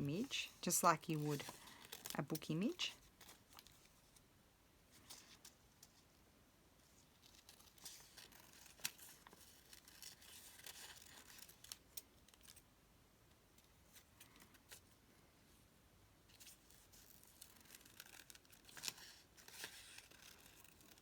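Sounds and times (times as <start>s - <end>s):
paper rustling: 0.5s - 4.2s, 7.0s - 12.6s, 16.3s - 21.0s.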